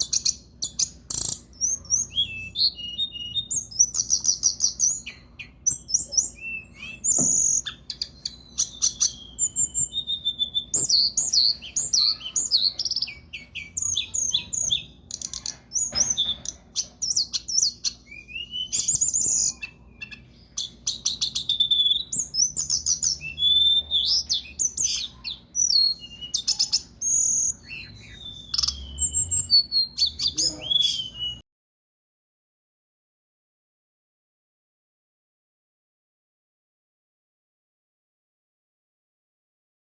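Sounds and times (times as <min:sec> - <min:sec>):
songbird singing: 0:00.0 - 0:31.4.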